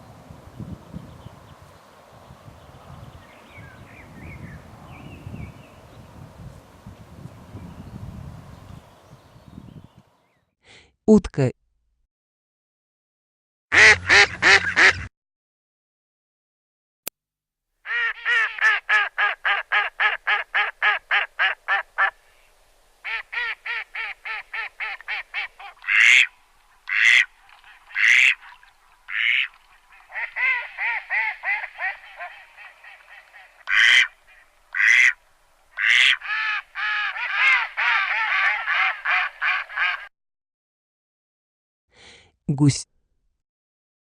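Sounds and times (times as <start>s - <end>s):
ducks quacking: 13.7s - 15.1s, 23.1s - 35.2s, 35.8s - 40.1s.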